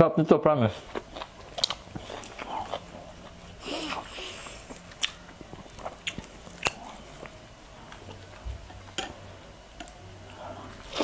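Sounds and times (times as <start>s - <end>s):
chewing crispy food: 0.7s - 9.1s.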